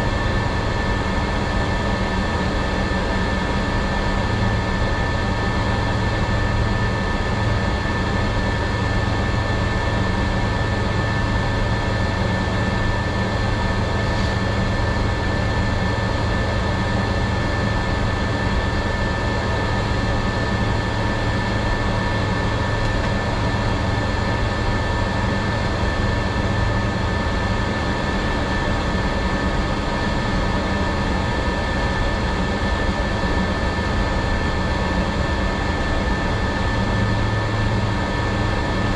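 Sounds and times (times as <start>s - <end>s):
jet engine drone: 0.0s - 38.9s
high jet whine: 12.2s - 26.7s
low hum: 13.7s - 16.6s.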